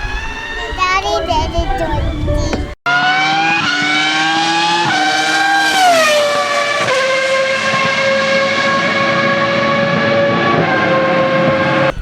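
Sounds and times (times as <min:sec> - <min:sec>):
racing car engine revving: 0:02.9 - 0:12.0.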